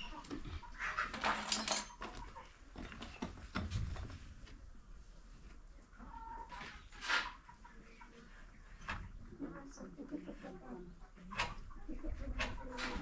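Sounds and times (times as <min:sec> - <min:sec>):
farm animals calling: 0:00.0 - 0:01.2
chickens clucking: 0:00.0 - 0:01.4, 0:02.1 - 0:03.5, 0:04.7 - 0:13.0.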